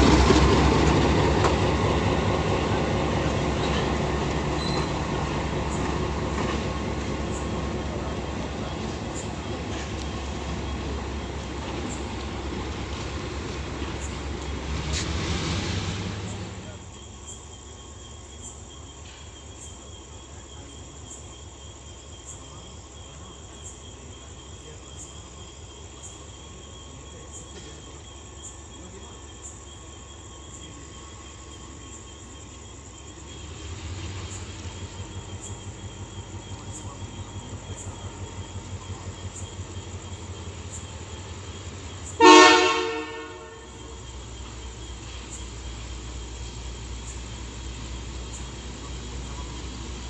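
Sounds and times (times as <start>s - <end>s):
crickets chirping: 0.0s - 50.0s
diesel locomotive idling: 0.0s - 50.0s
multi-tone air horn blast: 42.2s - 43.8s.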